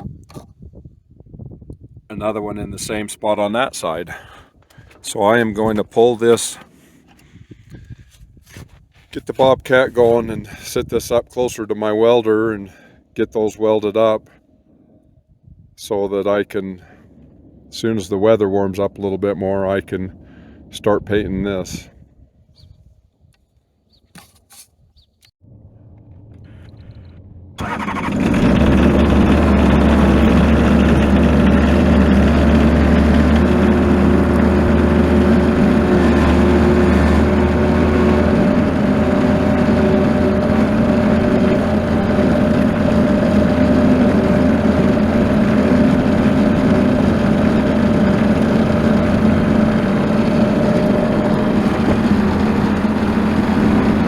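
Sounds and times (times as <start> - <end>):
skid steer engine starting and running: 2.8 - 8.1, 25.4 - 54.0.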